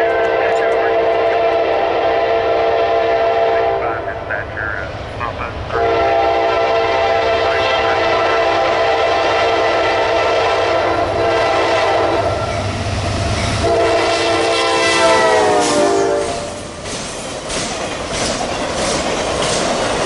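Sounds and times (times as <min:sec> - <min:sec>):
locomotive air horn blowing: 0:00.0 - 0:03.9, 0:05.8 - 0:12.4, 0:13.6 - 0:16.6
freight train rumbling: 0:00.0 - 0:20.0.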